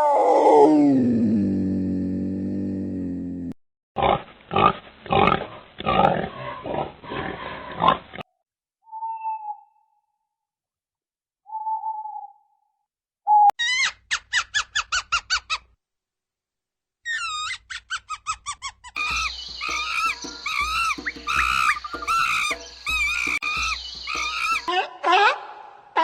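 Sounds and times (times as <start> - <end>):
squeaky falling chirps: 17.1 - 24.8
high-pitched animal calls: 17.1 - 26.0.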